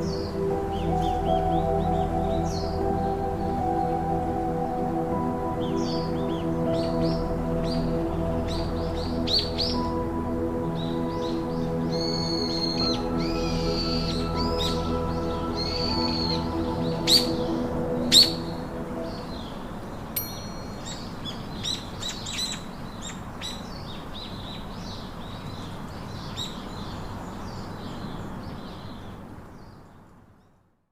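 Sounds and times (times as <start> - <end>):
music: 0.0 - 21.7
birds chirping: 0.0 - 30.0.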